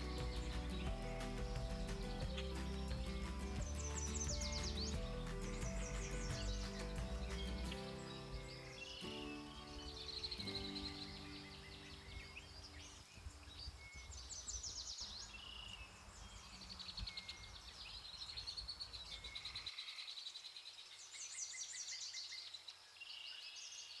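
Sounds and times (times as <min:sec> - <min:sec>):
soft background music: 0:00.0 - 0:12.9
songbirds singing: 0:00.0 - 0:24.0.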